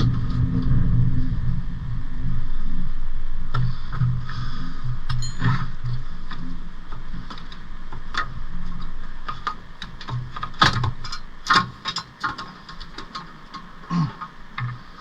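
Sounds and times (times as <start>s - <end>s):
low hum: 0.0s - 15.0s
metal tools clanking: 5.2s - 5.8s.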